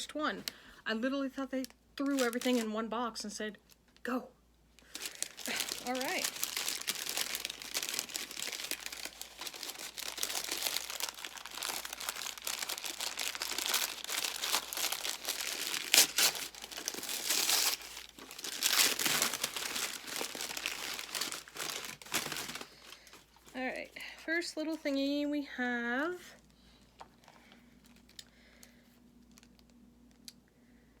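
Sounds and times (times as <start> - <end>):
sharp crackles of packaging: 1.6 - 2.7, 4.8 - 24.0, 27.0 - 30.4
packaging crinkling and rustling: 1.6 - 2.8, 4.8 - 25.1, 26.8 - 30.3.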